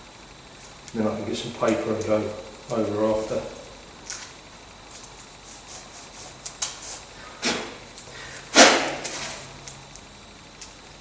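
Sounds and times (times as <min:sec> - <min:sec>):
masking tape pulled off roll: 0:08.5 - 0:09.6.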